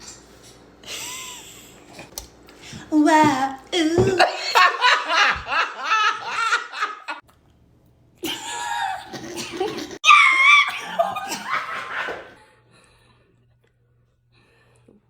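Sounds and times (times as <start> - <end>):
people laughing: 4.0 - 7.2, 10.8 - 12.4.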